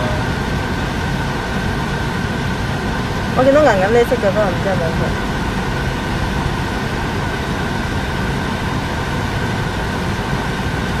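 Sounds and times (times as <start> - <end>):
road and engine noise in car: 0.0 - 11.0.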